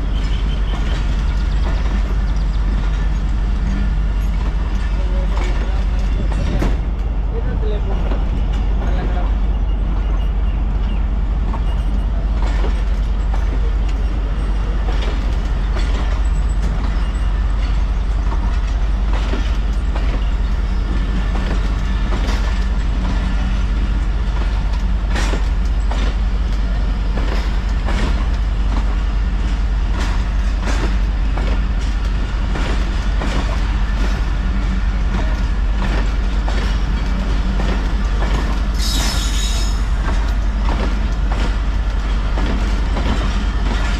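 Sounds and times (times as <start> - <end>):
train rolling on rails: 0.0 - 43.9
wheel clacks over rail joints: 0.0 - 43.9
high wheel squeal: 38.7 - 40.0.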